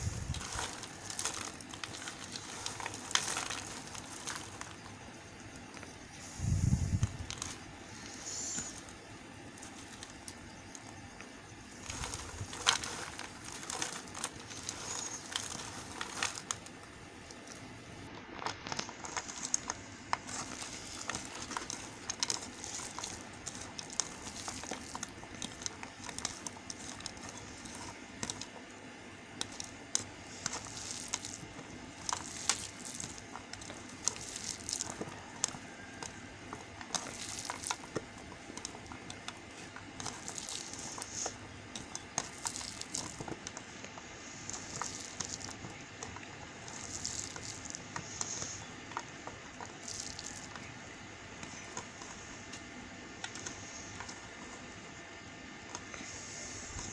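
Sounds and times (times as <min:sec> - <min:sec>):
light hiss: 0:07.9 - 0:09.0.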